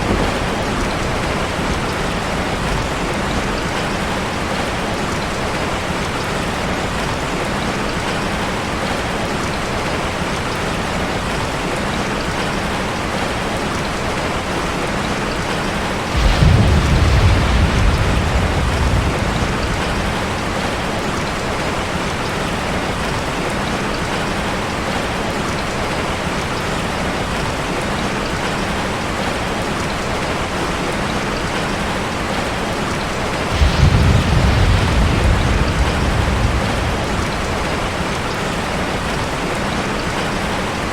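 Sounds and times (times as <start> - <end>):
thunder rumbling: 0.0 - 5.6, 16.0 - 23.0, 33.0 - 40.9
heavy rain on car roof: 0.0 - 40.9.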